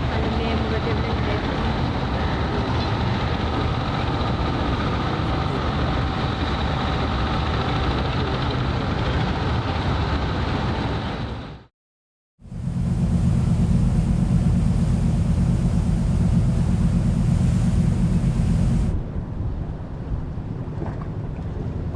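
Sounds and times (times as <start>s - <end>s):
constant hum: 0.0s - 11.0s, 12.4s - 21.9s
low mechanical rumble: 12.4s - 21.9s.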